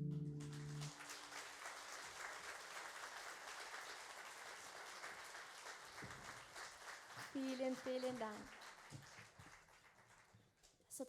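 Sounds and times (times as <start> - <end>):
band chord: 0.0 - 0.9
audience applauding: 0.0 - 10.7.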